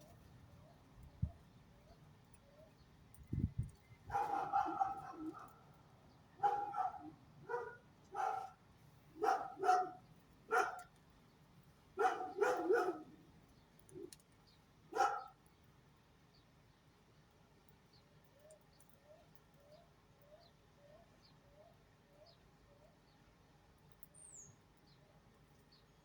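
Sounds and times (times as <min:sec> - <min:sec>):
dog barking: 0:04.1 - 0:05.6, 0:06.4 - 0:08.6, 0:09.2 - 0:10.9, 0:12.0 - 0:13.2, 0:14.9 - 0:15.4.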